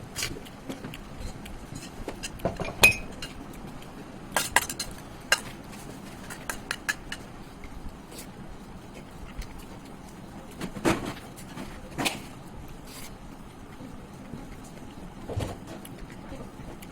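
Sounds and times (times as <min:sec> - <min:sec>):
clinks against a dish: 0:02.5 - 0:03.4.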